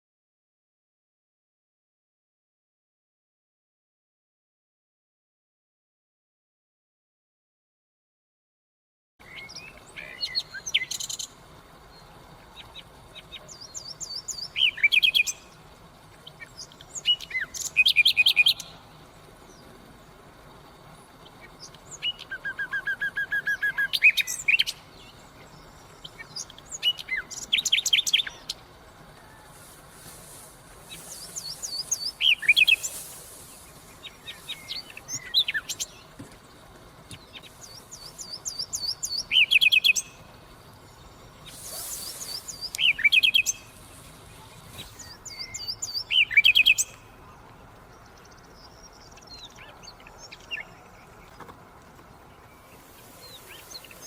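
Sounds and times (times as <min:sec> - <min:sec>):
nightingale singing: 0:09.2 - 0:15.6, 0:16.2 - 0:51.4, 0:52.1 - 0:54.0
low piping bird notes: 0:21.4 - 0:36.7, 0:37.3 - 0:47.4.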